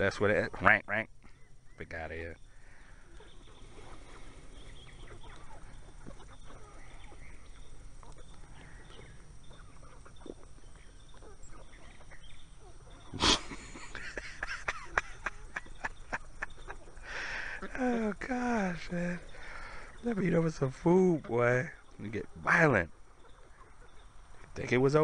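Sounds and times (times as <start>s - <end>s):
birds pecking grain: 0.0s - 25.0s
birds squabbling: 0.0s - 25.0s
chickens clucking: 0.0s - 25.0s.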